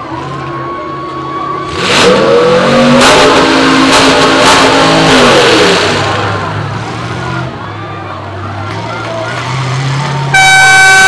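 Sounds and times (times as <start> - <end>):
car engine revving hard: 1.6 - 7.5.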